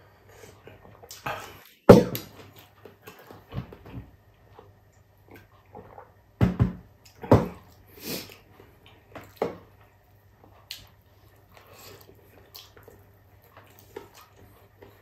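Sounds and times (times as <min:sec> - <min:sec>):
man chewing wetly: 0:07.0 - 0:15.0
lip smacks: 0:10.6 - 0:13.0.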